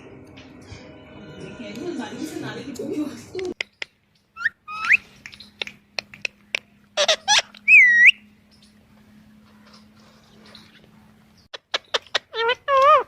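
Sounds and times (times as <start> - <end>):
parrot whistling: 4.4 - 5.0, 7.0 - 8.2
parrot squawking: 7.0 - 8.2, 11.5 - 13.0.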